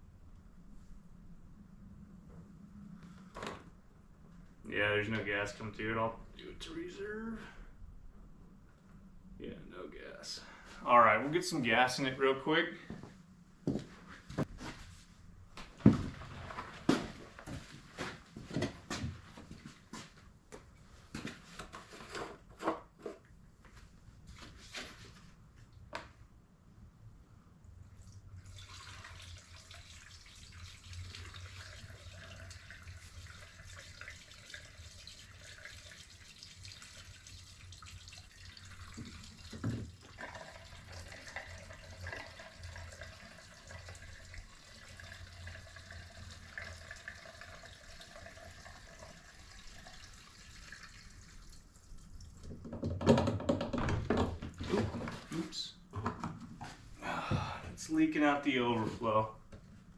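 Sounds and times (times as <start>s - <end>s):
fuel trickling into tank: 27.9s - 52.6s.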